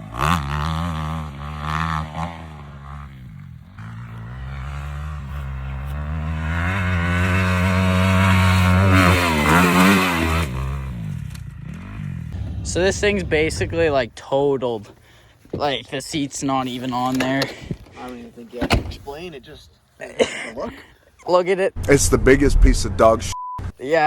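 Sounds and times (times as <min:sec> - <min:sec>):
small engine revving: 0:00.0 - 0:12.7.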